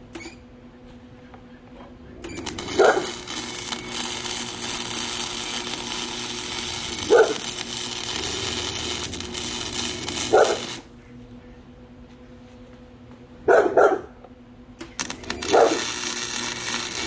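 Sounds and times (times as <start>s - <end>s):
welding arc crackling: 2.3s - 10.9s, 14.8s - 17.0s
dog barking loudly: 2.8s - 3.1s, 7.1s - 7.5s, 10.3s - 10.7s, 13.5s - 14.2s, 15.5s - 15.8s.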